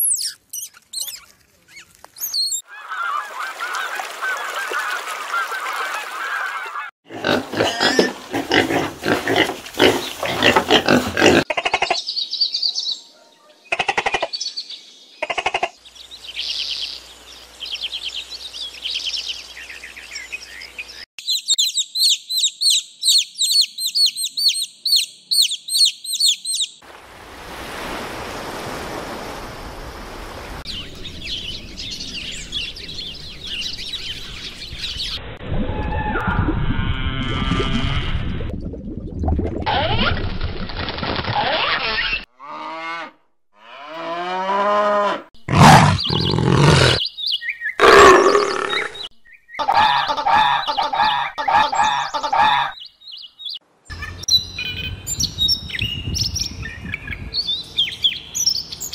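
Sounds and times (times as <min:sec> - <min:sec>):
bird calls and chirps: 0:00.0 - 0:06.8, 0:11.6 - 0:26.8, 0:30.7 - 0:35.3, 0:45.6 - 0:58.9
goose honking: 0:49.6 - 0:52.7.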